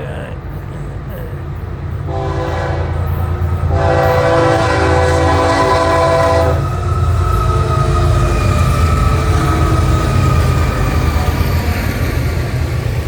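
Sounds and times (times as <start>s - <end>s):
train air horn blasts: 2.1s - 6.7s.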